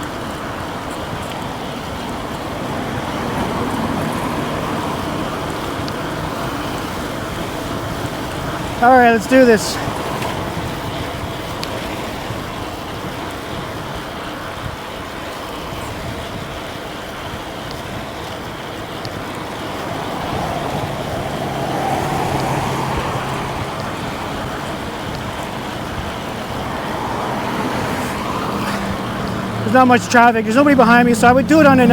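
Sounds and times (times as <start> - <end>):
vehicle passing: 0.0 - 13.1, 17.4 - 31.9
wind and tyre rush: 0.0 - 31.9.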